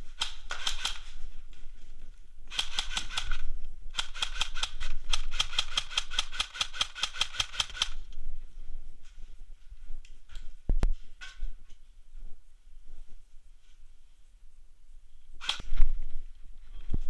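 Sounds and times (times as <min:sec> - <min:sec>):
airsoft gun firing bursts: 0:00.1 - 0:01.1, 0:02.5 - 0:08.1, 0:15.4 - 0:15.7.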